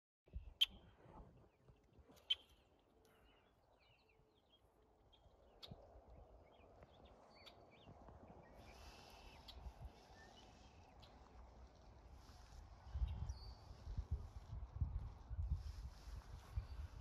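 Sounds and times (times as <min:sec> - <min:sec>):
birds chirping: 0:00.3 - 0:11.3.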